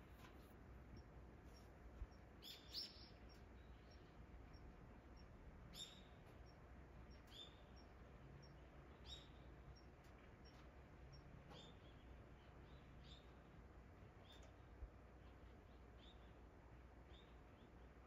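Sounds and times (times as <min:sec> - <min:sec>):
faint bird chirps: 0:00.8 - 0:13.4, 0:15.2 - 0:16.4.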